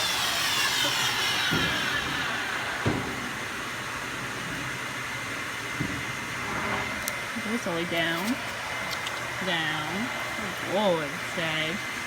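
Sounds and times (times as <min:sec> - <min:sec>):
power saw motor winding down: 0:00.0 - 0:05.6.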